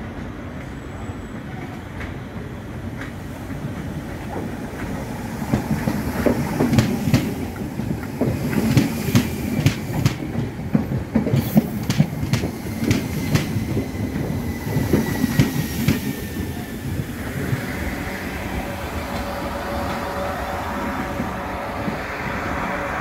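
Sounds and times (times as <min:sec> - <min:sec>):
electric train humming: 0:02.8 - 0:23.0
train wheels clicking over rail joints: 0:03.0 - 0:16.5.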